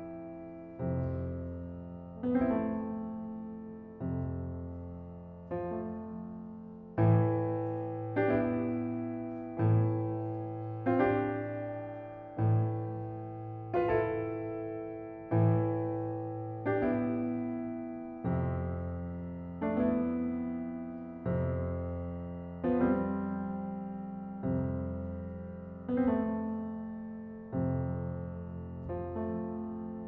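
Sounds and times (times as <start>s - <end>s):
slow solo piano chords: 0.0s - 30.0s.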